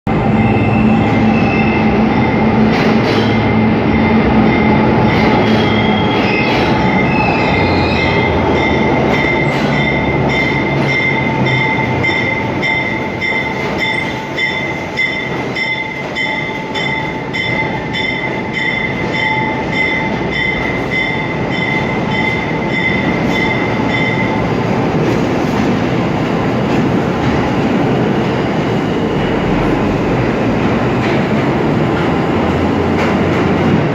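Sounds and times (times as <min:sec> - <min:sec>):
train rumbling: 0:00.1 - 0:33.9
train wheels squealing: 0:00.2 - 0:24.3
rail clatter: 0:02.1 - 0:33.9.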